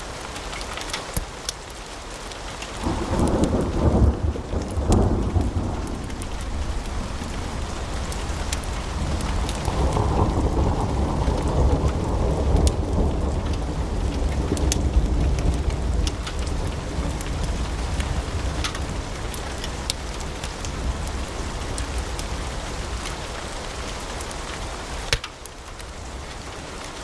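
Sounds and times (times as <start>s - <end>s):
log fire crackling: 0.0s - 27.0s
deep rumble: 2.9s - 22.6s.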